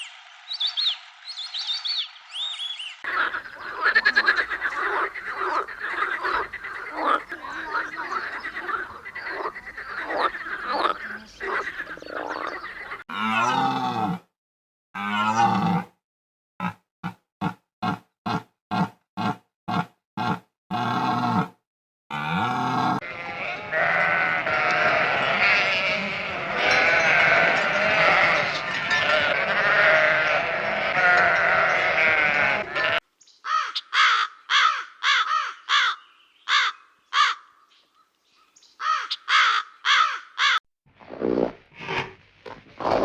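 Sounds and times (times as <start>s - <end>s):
sheep bleating: 22.1s - 33.0s.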